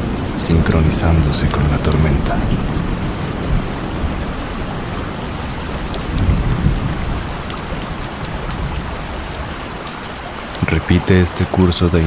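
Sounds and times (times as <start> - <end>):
low rolling thunder: 0.0 - 9.0
rain falling: 0.0 - 12.0.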